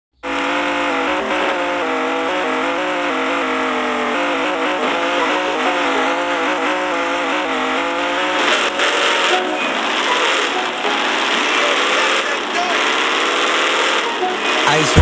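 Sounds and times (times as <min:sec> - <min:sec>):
race car engines revving high: 0:00.1 - 0:15.0
harsh rush of noise: 0:08.4 - 0:15.0.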